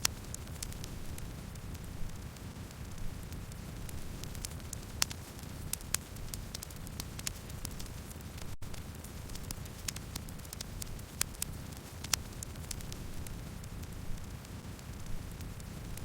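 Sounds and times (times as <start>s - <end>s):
campfire crackling and popping: 0.0s - 16.0s
low rumble of flames: 0.0s - 16.0s.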